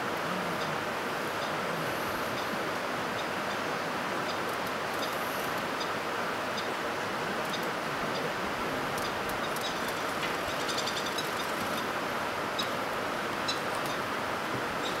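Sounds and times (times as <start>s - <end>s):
outdoor background noise: 0.0s - 15.0s
faint high chirps and ticks: 9.0s - 11.8s.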